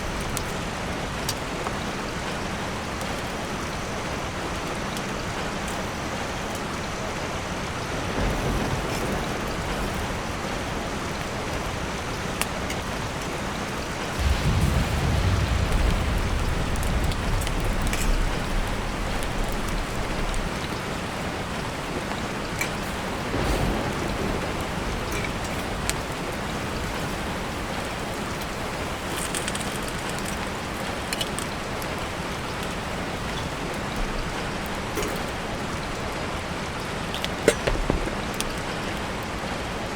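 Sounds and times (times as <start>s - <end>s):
steady rain falling: 0.0s - 39.9s
deep low rumble: 14.2s - 20.8s.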